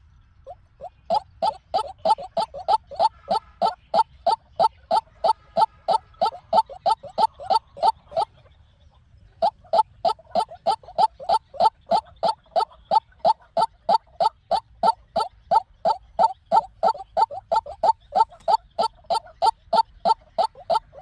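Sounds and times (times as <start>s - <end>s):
waterhen calling harsh notes: 0.8s - 8.3s, 9.4s - 21.0s.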